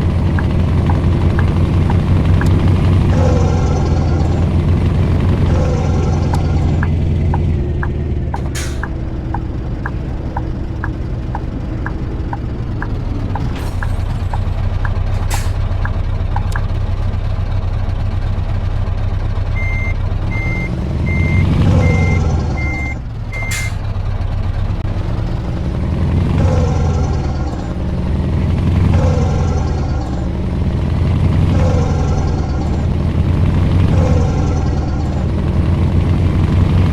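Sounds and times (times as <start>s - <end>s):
regular ticking: 0.0s - 15.5s, 16.4s - 16.7s
truck engine running: 0.0s - 36.9s
short beeps: 19.6s - 23.8s.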